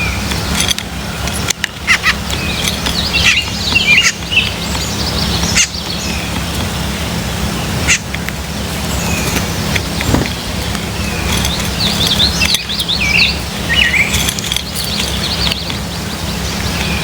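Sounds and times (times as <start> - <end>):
steady low hum: 0.0 - 17.0
wild birds chirping: 0.0 - 17.0
sharp clicks: 9.3 - 15.9.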